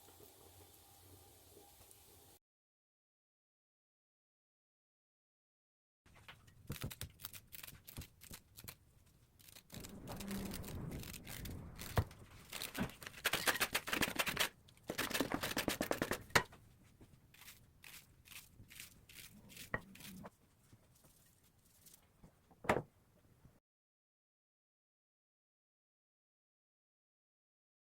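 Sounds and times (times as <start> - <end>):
scraping and rustling: 6.1 - 22.4.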